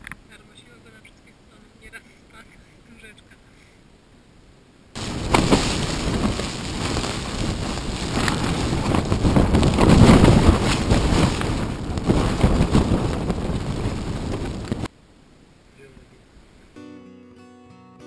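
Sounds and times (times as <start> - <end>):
wind buffeting microphone: 5.0 - 14.9.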